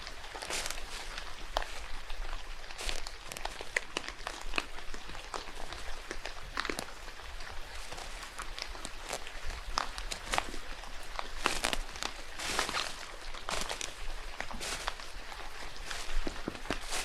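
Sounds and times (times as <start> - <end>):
rain pattering in forest: 0.0 - 17.0.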